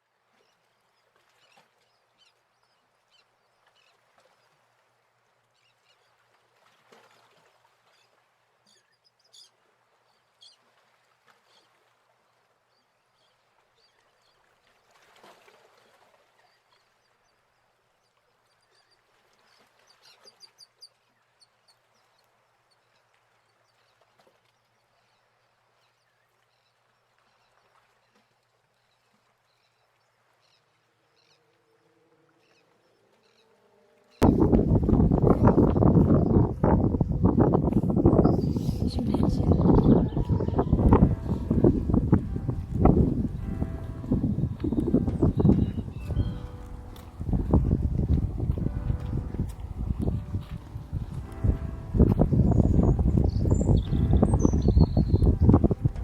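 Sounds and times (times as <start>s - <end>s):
faint birds chirping: 16.5s - 56.0s.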